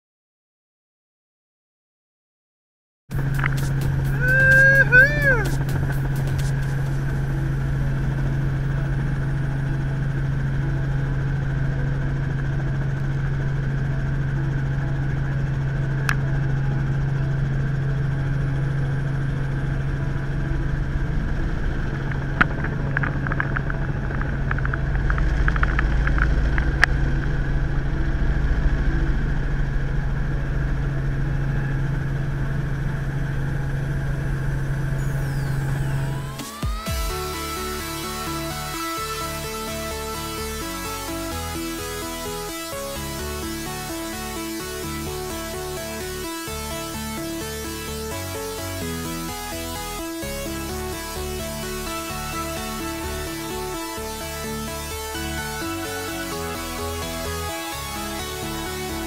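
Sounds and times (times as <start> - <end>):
helicopter engine and rotors drone: 3.1 - 59.0.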